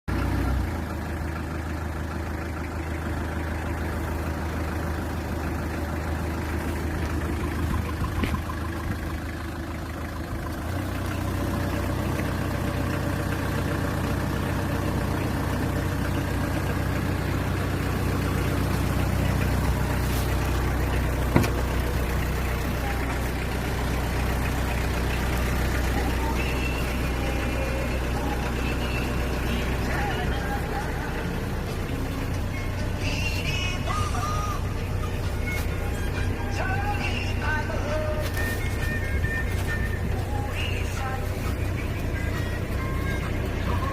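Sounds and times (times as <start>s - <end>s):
diesel truck engine idling: 0.1s - 43.9s.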